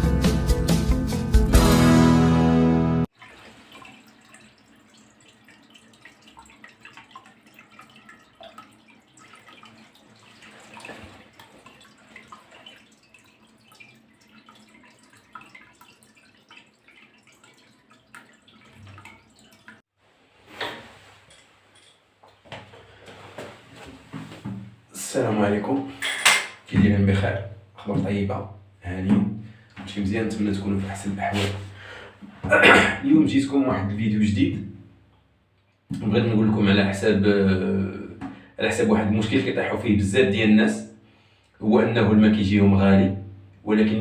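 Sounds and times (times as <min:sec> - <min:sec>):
water dripping and trickling: 0:03.1 - 0:19.9, 0:27.7 - 0:31.2, 0:34.9 - 0:36.0.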